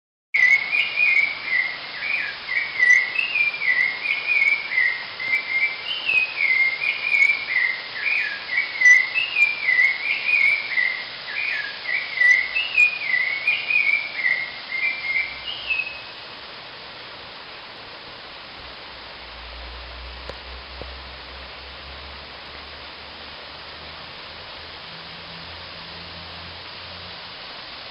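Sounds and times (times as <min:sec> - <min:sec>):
high repeated chirping calls: 0:00.4 - 0:16.2
waterfall rushing: 0:00.4 - 0:27.9.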